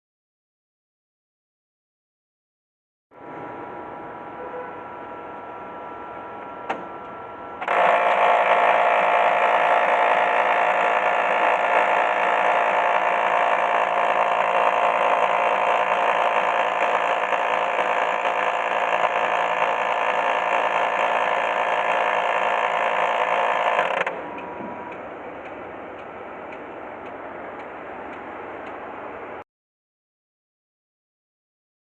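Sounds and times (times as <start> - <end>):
photocopier humming: 3.2 - 29.4
mechanical gear noise: 7.6 - 25.6.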